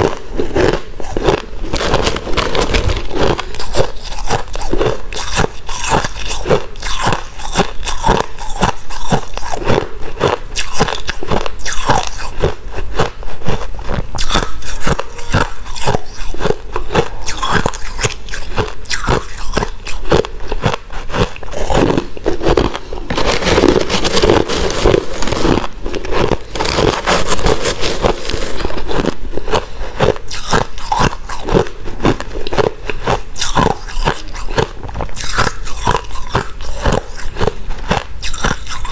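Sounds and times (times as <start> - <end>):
ice being chewed: 0.0 - 38.9.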